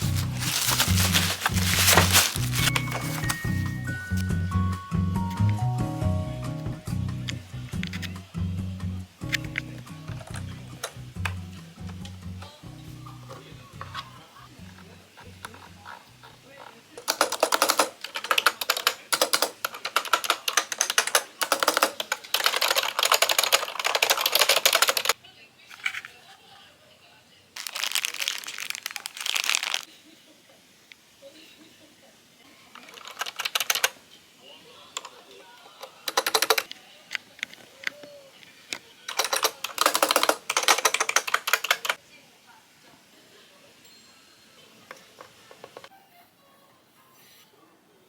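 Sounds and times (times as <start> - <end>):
clicky keyboard typing: 17.0 - 25.2, 39.1 - 42.0.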